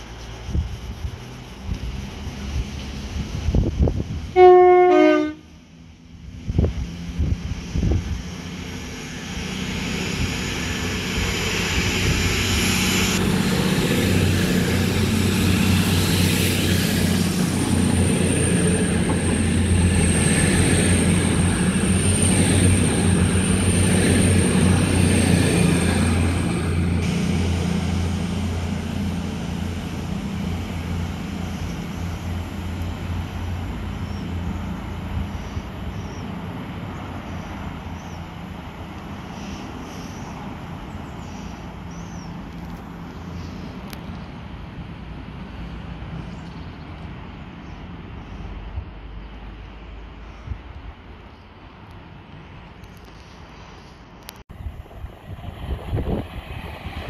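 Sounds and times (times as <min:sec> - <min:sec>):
train rumbling past: 0:00.0 - 0:57.0
two-tone train horn: 0:04.3 - 0:05.6.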